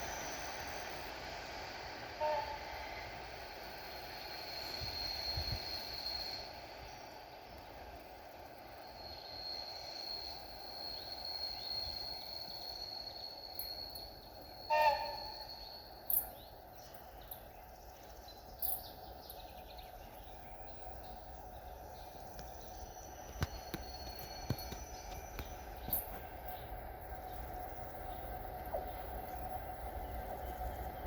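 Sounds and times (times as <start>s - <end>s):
distant freight train rumble: 0.0s - 31.0s.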